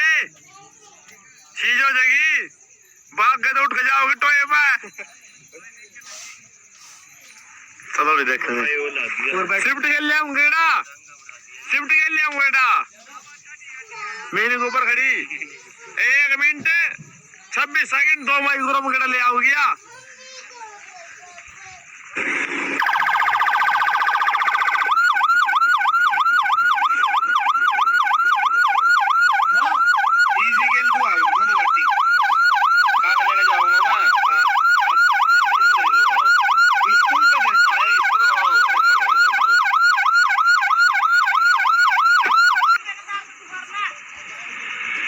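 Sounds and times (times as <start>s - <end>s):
electronic siren yelping: 22.8s - 42.8s.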